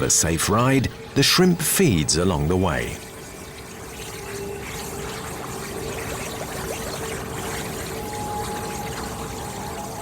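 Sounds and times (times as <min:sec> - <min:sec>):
underwater bubbling: 0:02.8 - 0:10.0.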